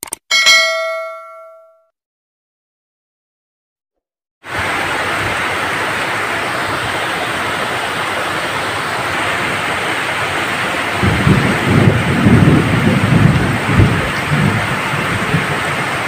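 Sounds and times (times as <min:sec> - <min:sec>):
heavy rain: 0:04.4 - 0:16.0
thunder rumbling: 0:11.0 - 0:16.0.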